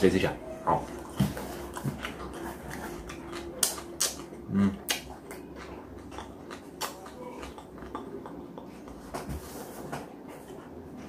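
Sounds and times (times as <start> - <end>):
person chewing crunchy onion: 0.8 - 9.1
low throat sound: 4.4 - 5.0.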